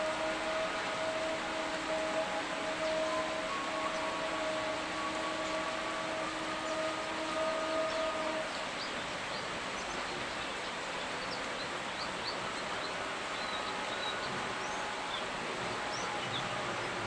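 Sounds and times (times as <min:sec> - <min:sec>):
steady hum: 0:00.0 - 0:08.8
rainfall hiss: 0:00.0 - 0:17.0.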